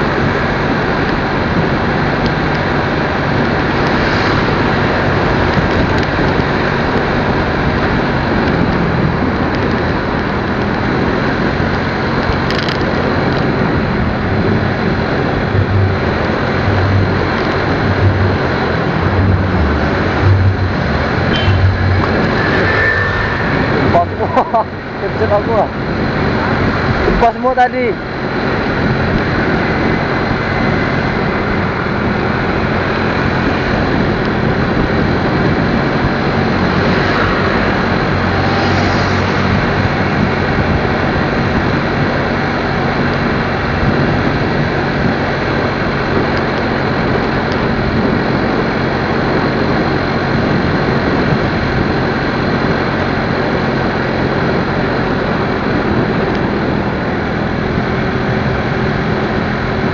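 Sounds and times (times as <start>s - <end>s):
motorcycle engine running: 0.0s - 27.4s, 28.0s - 59.9s
wind noise: 0.0s - 59.9s.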